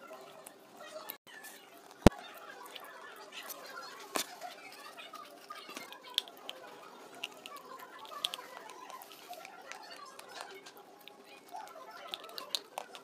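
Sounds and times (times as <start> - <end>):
crunchy chewing: 0.0 - 13.0.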